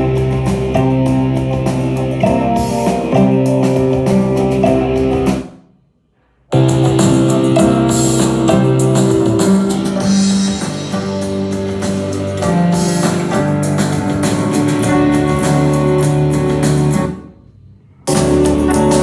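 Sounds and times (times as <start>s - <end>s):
music with guitar and drums: 0.0s - 5.6s, 6.5s - 17.3s, 18.1s - 19.0s.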